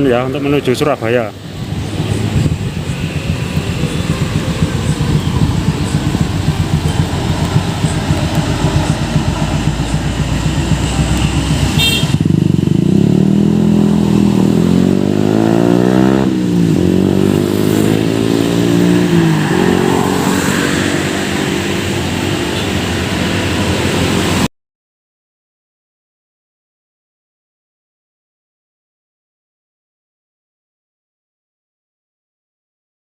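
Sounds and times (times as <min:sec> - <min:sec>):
bus engine pulling away: 0:00.0 - 0:24.5.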